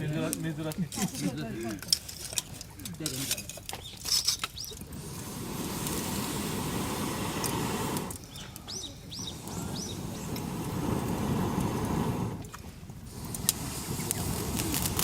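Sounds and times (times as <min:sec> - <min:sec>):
small bird chirping: 0:03.7 - 0:04.9, 0:08.1 - 0:10.4
steady rushing noise: 0:05.0 - 0:08.2, 0:09.2 - 0:15.0.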